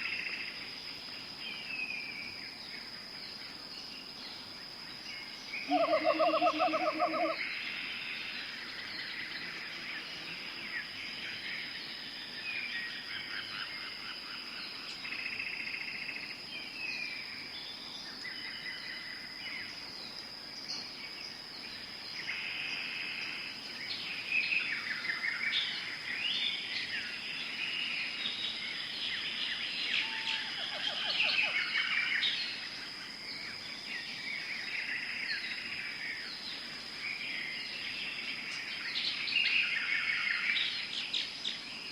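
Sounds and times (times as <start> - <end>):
high insect drone: 0.0 - 41.9
birds calling and trilling: 5.2 - 12.0.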